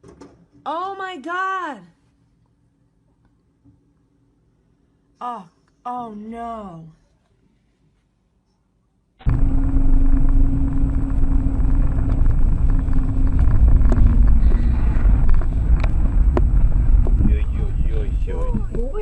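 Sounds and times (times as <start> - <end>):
vehicle engine rumbling: 9.2 - 19.0.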